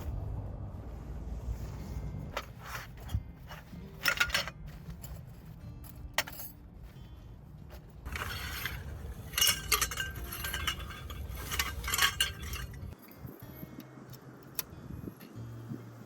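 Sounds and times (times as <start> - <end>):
rustling of gear: 1.3 - 13.0
sharp metallic clinks: 8.1 - 13.0.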